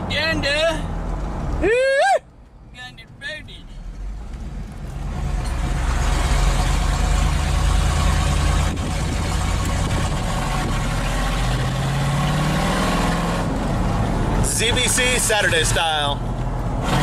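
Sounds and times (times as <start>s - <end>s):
loud unmuffled truck engine: 4.7s - 17.0s.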